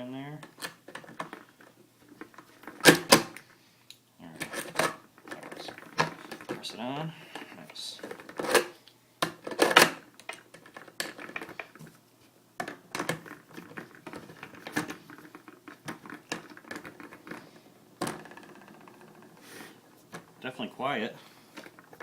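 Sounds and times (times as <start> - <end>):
skateboard parts clicking and knocking: 0.4 - 3.5, 7.3 - 11.8, 12.6 - 19.4.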